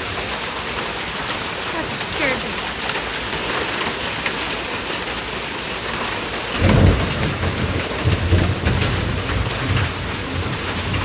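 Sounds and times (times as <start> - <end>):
heavy rain falling: 0.0 - 11.0
thunder rumbling: 6.4 - 11.0.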